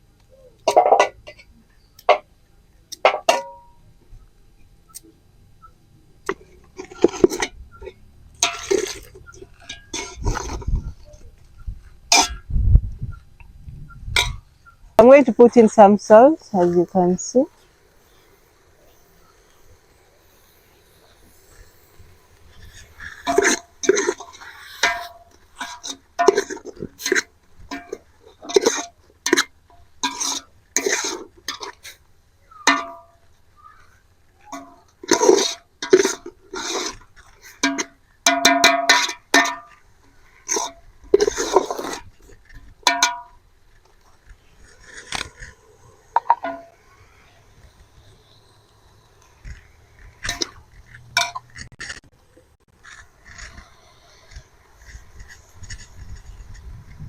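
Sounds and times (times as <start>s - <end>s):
metal spoon scraping a pot: 6.3s - 11.0s, 22.4s - 33.2s, 34.4s - 43.3s.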